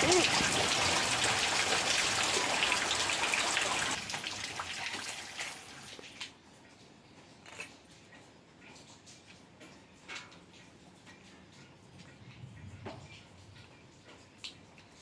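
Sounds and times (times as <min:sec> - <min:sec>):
rain falling: 0:00.0 - 0:05.8.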